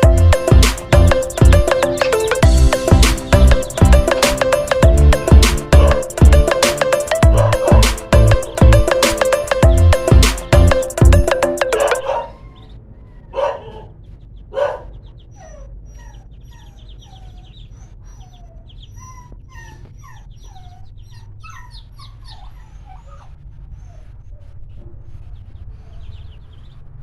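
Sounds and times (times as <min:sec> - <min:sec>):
dog whimpering: 0:11.7 - 0:14.0, 0:14.6 - 0:26.3
dog yelps: 0:11.7 - 0:26.5.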